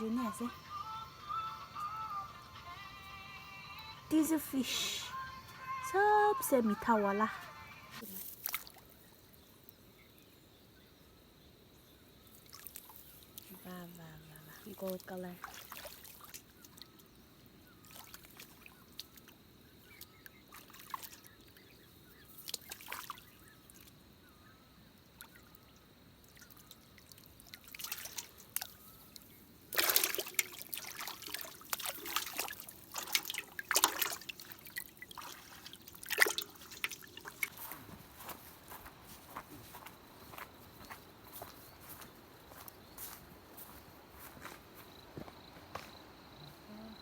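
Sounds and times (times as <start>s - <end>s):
water trickling and splashing: 8.0s - 10.1s, 12.2s - 24.0s, 25.1s - 44.4s.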